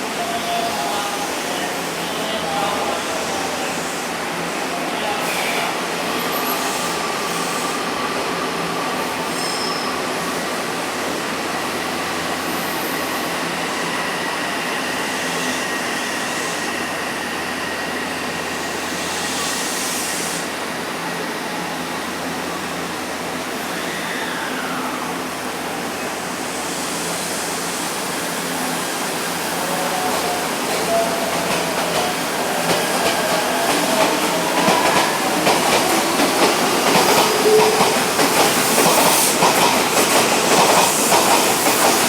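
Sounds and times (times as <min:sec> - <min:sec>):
electric train running: 0:26.4 - 0:42.0.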